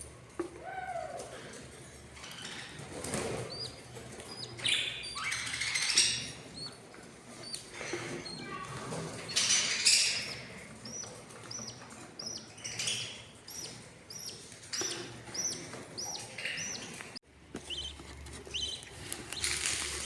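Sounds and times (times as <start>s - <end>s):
rustling and wing-flapping: 0.2s - 4.7s, 13.7s - 20.0s
budgerigars chirping: 2.2s - 19.5s.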